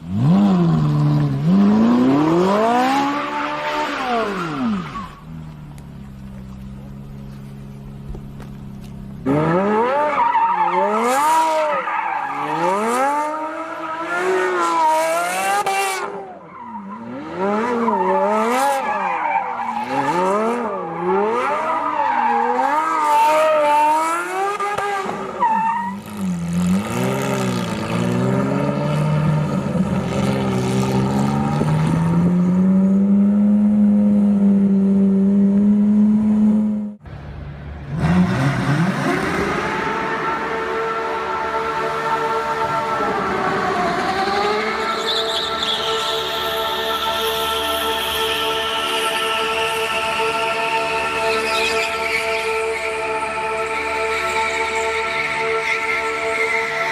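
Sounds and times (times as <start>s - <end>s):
car engine revving: 0.0s - 56.9s
tyres screeching: 44.4s - 46.9s.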